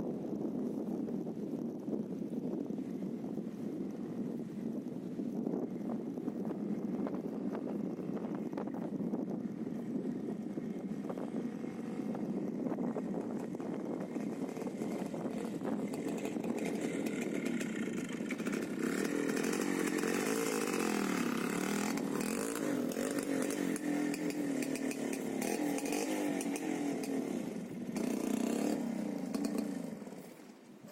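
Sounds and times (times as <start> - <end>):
motorcycle engine revving: 6.4 - 30.9.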